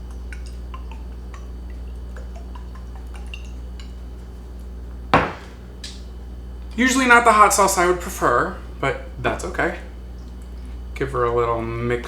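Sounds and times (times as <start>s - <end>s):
hot sauce dripping plops: 0.0s - 4.7s
loud knock: 5.2s - 5.6s.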